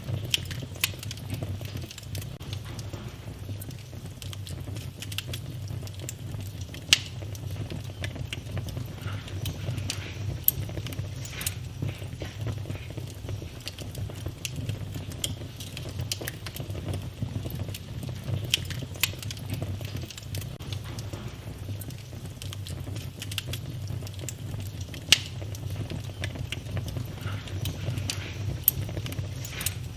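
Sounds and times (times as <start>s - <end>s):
low rumble of flame: 0.0s - 29.9s
sharp pops and snaps: 0.0s - 29.9s
wood fire crackling: 0.0s - 29.9s.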